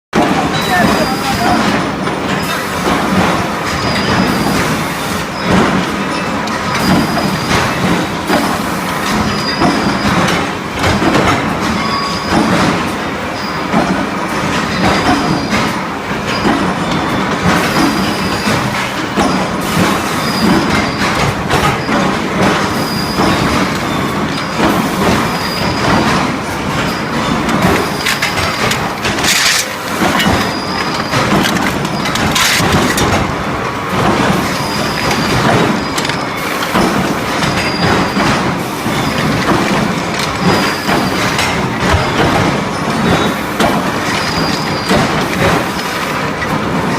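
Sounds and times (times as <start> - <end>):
steel rods rattling and clanking: 20.3 - 46.0.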